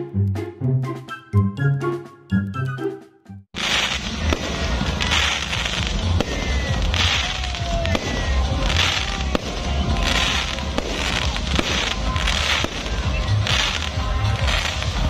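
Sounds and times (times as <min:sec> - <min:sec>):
crackling hiss of fireworks: 0:03.6 - 0:15.0
fireworks bangs: 0:03.6 - 0:15.0.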